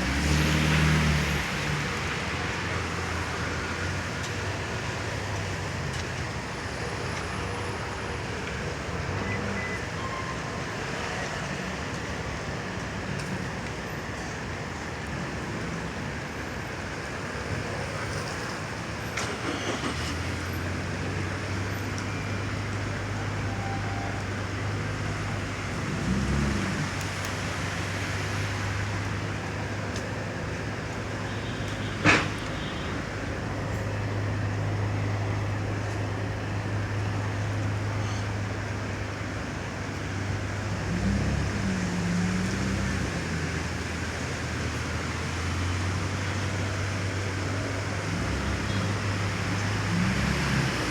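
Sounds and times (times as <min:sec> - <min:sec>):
tyres hissing on wet road: 0:00.0 - 0:50.9
vehicle engine hum: 0:10.8 - 0:50.9.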